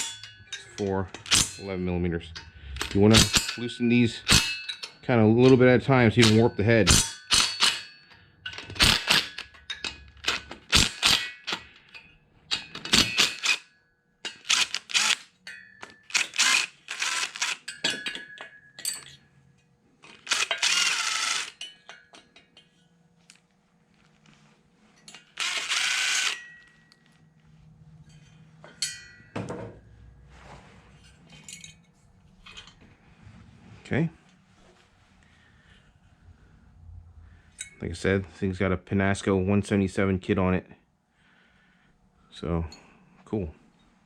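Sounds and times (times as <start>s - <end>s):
hand ratchet clicking: 2.3s - 5.6s, 6.2s - 7.9s, 8.5s - 13.6s, 14.3s - 15.3s, 16.1s - 17.8s, 20.1s - 21.6s, 25.1s - 26.5s
raspy ratchet bursts: 10.2s - 11.3s, 14.4s - 15.2s, 16.1s - 17.7s, 20.2s - 21.6s, 25.4s - 26.4s.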